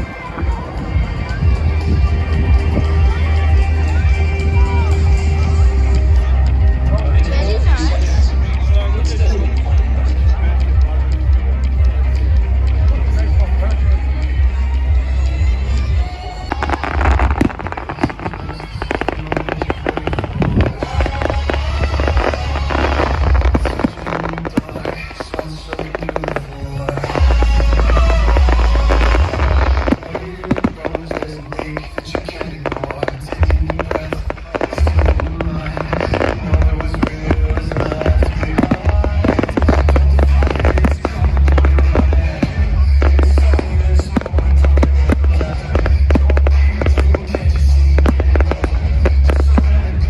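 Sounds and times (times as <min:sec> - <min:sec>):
fireworks crackling and popping: 0:00.0 - 0:50.0
loud music with heavy bass: 0:00.0 - 0:50.0.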